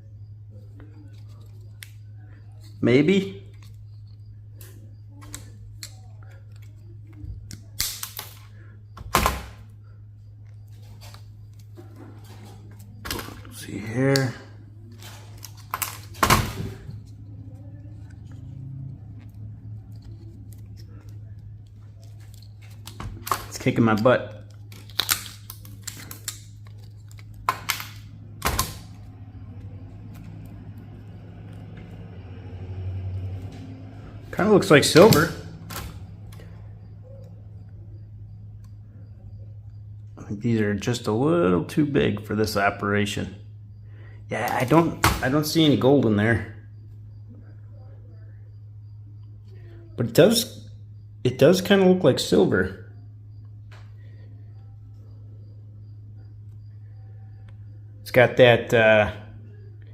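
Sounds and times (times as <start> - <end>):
low hum: 0.0 - 40.4.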